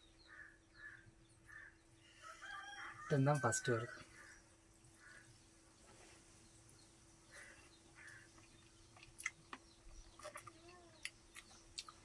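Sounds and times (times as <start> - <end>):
faint steady hum: 0.0 - 12.0
faint bird call: 7.3 - 8.4.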